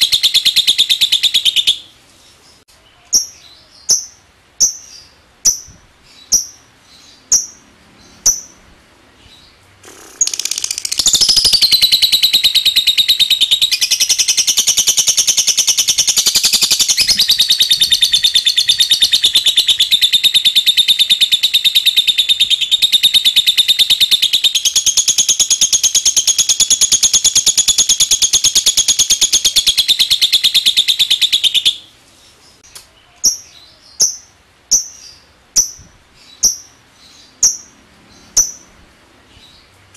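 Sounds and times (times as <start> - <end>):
lovebird sharp chirps: 0.0 - 1.9, 3.0 - 7.6, 9.8 - 31.9, 32.6 - 36.8, 37.4 - 37.7, 38.3 - 38.8
lovebird rapid rattling trill: 9.8 - 31.8.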